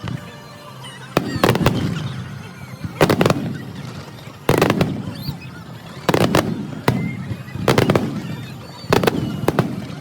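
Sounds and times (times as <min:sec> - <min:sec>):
fireworks bangs with crackle: 0:01.2 - 0:10.0.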